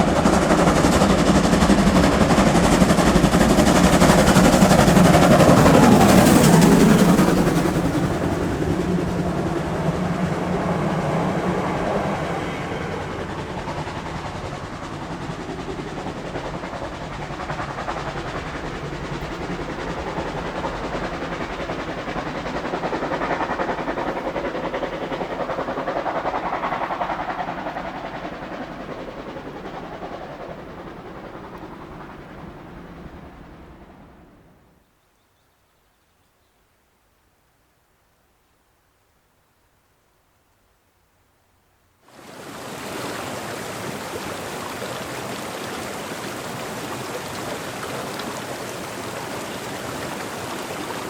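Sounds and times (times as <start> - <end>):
train rumbling on rails: 0.0 - 34.6.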